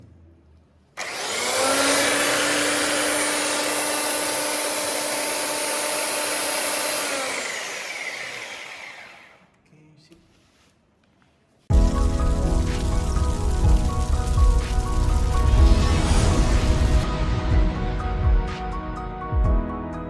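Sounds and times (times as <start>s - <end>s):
belt sander whining: 1.0s - 9.4s.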